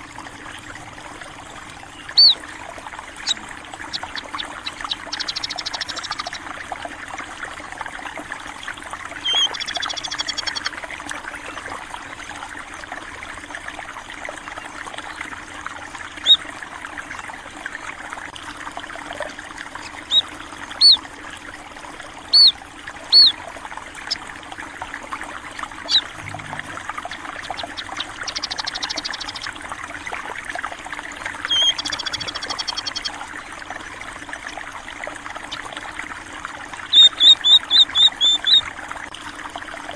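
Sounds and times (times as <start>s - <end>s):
water flowing: 0.0s - 39.9s
small birds chirping: 1.9s - 2.5s, 3.2s - 6.5s, 9.2s - 10.7s, 19.8s - 21.0s, 22.3s - 23.4s, 25.8s - 29.6s, 31.4s - 33.2s, 36.9s - 38.7s.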